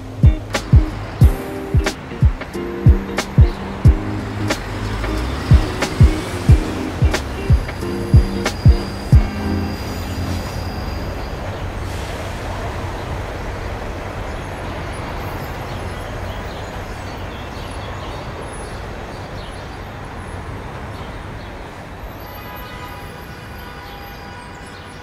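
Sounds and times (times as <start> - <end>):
train rumbling: 0.0 - 15.2.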